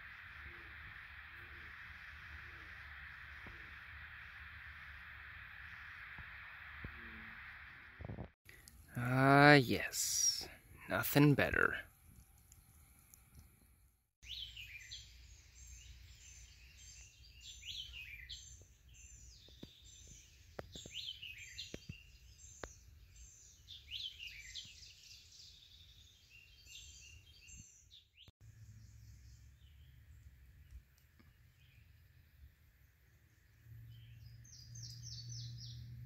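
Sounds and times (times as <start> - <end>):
wild birds chirping: 8.5 - 36.0.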